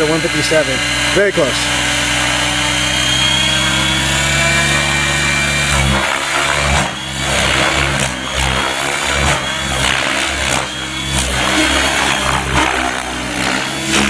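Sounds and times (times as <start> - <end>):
model helicopter rotor and motor: 0.0 - 14.0.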